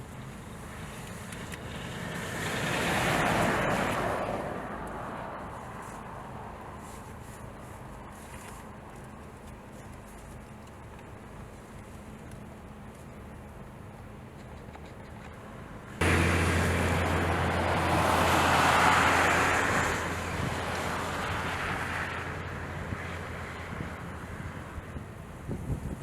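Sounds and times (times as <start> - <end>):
wind buffeting microphone: 16.0 - 26.0.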